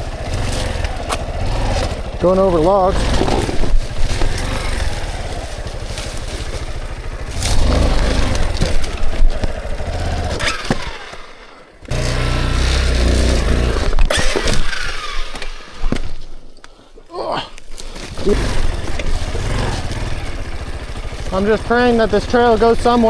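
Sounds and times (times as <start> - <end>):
dirt bike engine revving: 0.0 - 16.2, 17.7 - 23.0
knocks and scrapes: 0.4 - 11.3.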